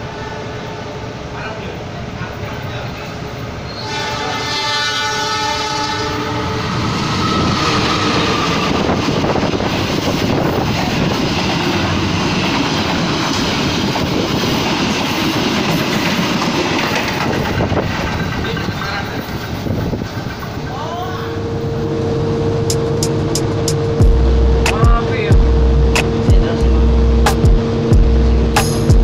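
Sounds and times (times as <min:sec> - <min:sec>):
train horn: 0:00.0 - 0:01.0, 0:03.7 - 0:08.9
train rushing through station: 0:00.0 - 0:29.0.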